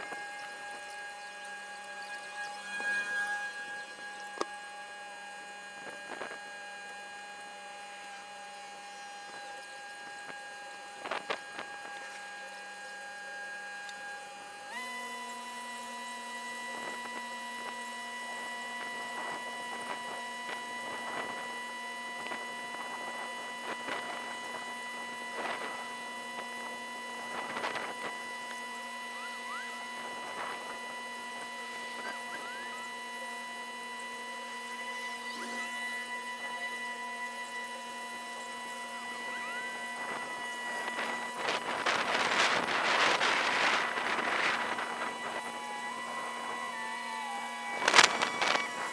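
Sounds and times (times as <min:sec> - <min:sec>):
steady hum: 0:00.0 - 0:48.9
faint clicks and crackles: 0:47.8 - 0:48.9.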